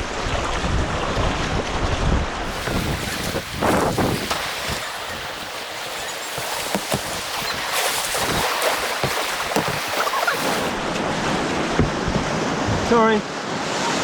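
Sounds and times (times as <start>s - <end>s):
small water splashes: 2.4s - 12.0s
white water rushing: 2.4s - 12.5s.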